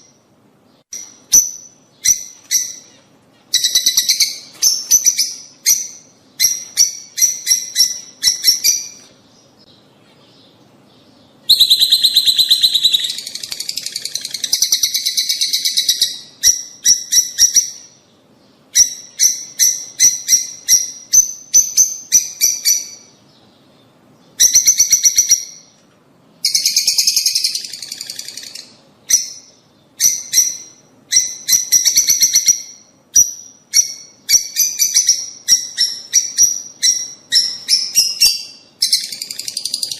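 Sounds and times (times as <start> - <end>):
lovebirds chattering: 0.9 - 25.7.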